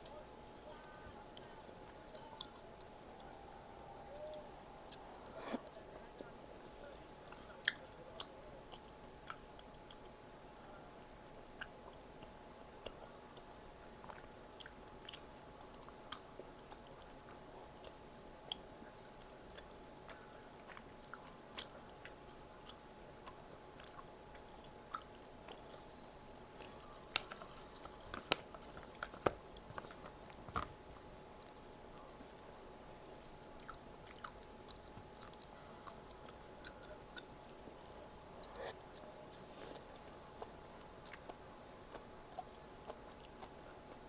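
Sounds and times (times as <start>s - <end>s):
chewing and crunching snack: 0.0s - 3.4s, 4.1s - 10.4s, 11.4s - 44.0s
faint steady hum: 0.0s - 44.0s.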